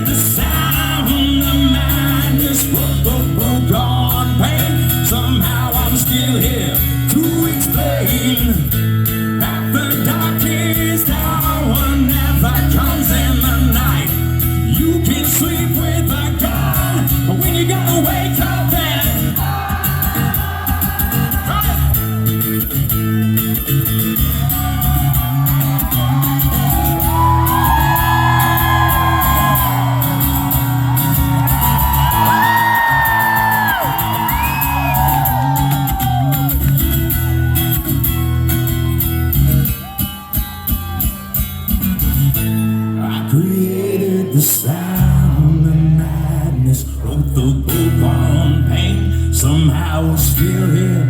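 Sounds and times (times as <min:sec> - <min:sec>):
rhythm guitar chords: 0:00.0 - 0:51.0
lead guitar melody: 0:21.4 - 0:49.4.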